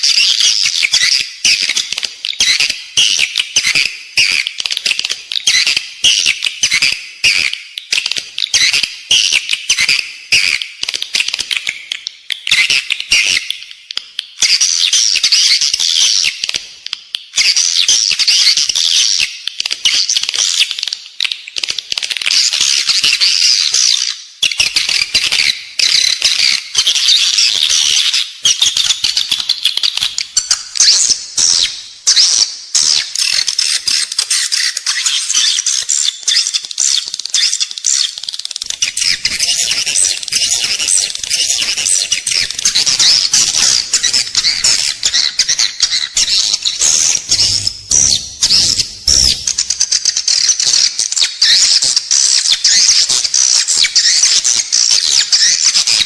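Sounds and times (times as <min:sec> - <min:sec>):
swiftlets twittering and clicking: 0:32.8 - 0:56.0.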